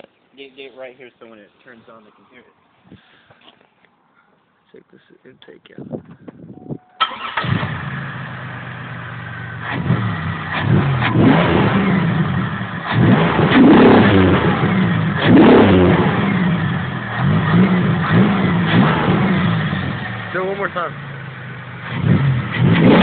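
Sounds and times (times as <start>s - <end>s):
car engine idling and revving: 7.1s - 23.0s.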